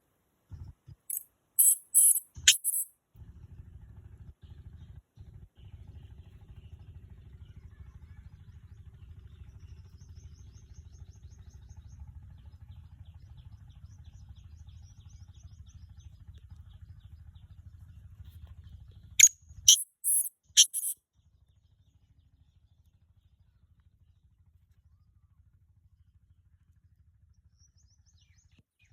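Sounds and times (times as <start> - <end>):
partridge harsh calls: 1.1 - 2.8, 19.2 - 21.0
faint rapid high chirping: 1.1 - 2.9, 19.2 - 21.0
low steady rumble: 3.1 - 19.6.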